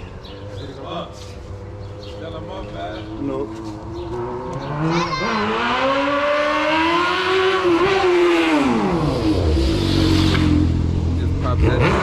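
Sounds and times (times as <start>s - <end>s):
dirt bike engine revving: 3.0s - 12.0s.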